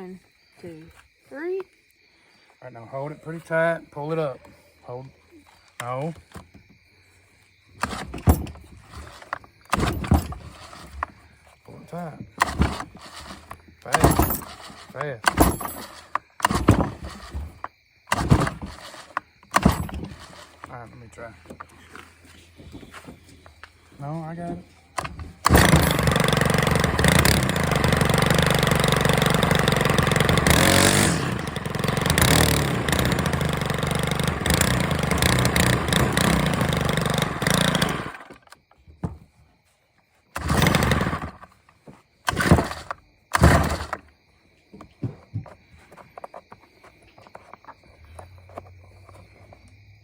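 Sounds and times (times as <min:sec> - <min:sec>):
string trimmer engine running: 0:07.8 - 0:11.2, 0:12.4 - 0:17.5, 0:18.1 - 0:20.8, 0:25.0 - 0:38.4, 0:40.4 - 0:41.5, 0:42.3 - 0:44.0.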